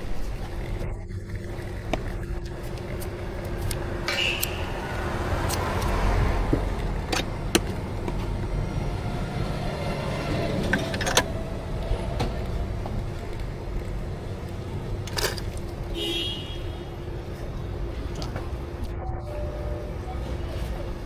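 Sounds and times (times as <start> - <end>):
sharp clicks and knocks: 5.4 - 8.4.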